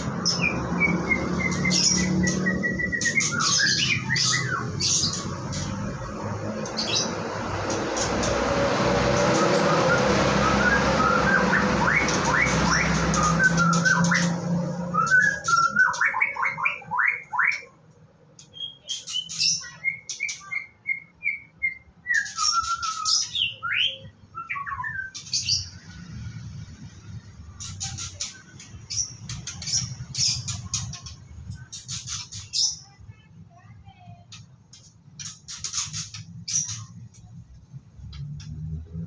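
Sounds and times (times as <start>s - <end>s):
bird singing whistled notes: 0.0s - 5.7s, 9.4s - 17.7s, 18.5s - 25.8s.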